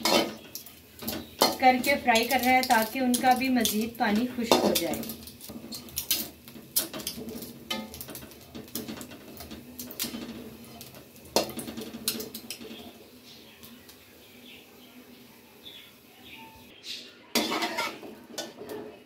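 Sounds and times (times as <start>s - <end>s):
metal spatula scraping a wok: 0.0s - 12.6s, 17.3s - 19.0s.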